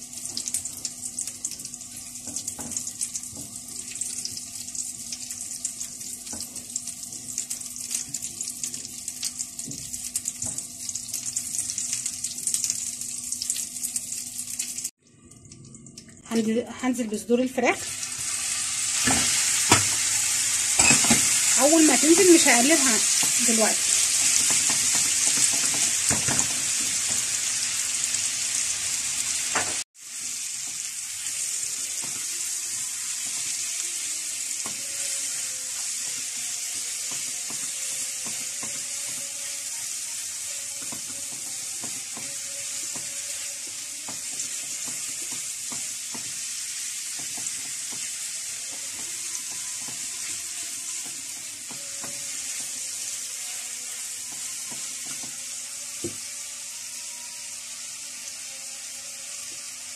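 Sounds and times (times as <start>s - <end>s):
chicken sizzling in butter: 17.5s - 59.9s.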